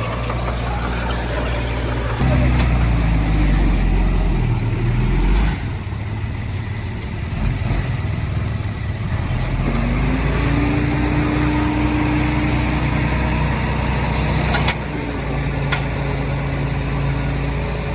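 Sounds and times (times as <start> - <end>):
diesel engine droning: 0.0 - 17.9.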